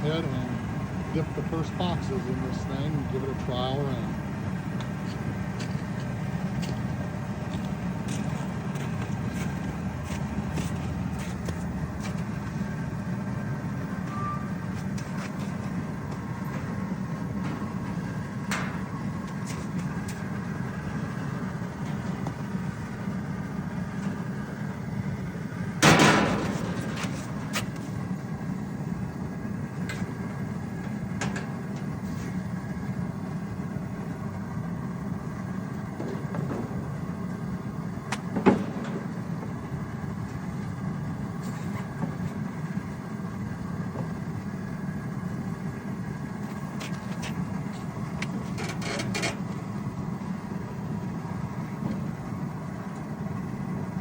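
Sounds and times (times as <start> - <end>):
steady low rumble: 0.0 - 54.0
metal clank: 17.4 - 19.0, 25.8 - 27.8.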